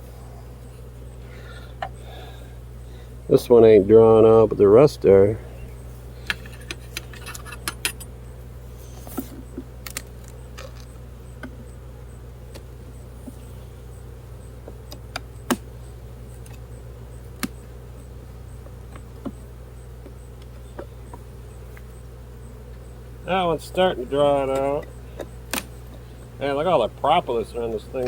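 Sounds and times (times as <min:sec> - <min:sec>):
bees buzzing: 0:00.0 - 0:28.0
clicks of wooden hive frames: 0:01.7 - 0:02.0, 0:05.6 - 0:08.2, 0:09.0 - 0:11.7, 0:12.4 - 0:13.5, 0:14.5 - 0:26.4, 0:27.5 - 0:28.0.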